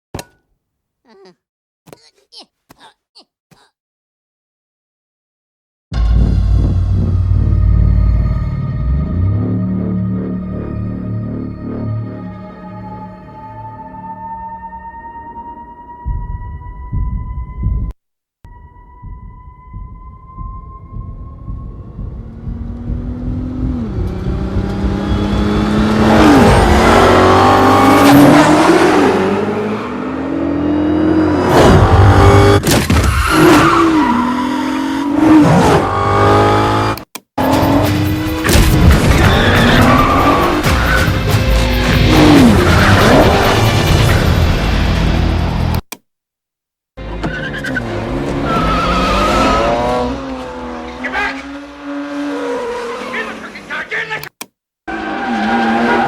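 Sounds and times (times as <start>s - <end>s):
car engines passing at speed: 21.5s - 32.6s, 47.1s - 53.8s
tyre squeal: 39.1s - 41.1s, 47.2s - 49.9s.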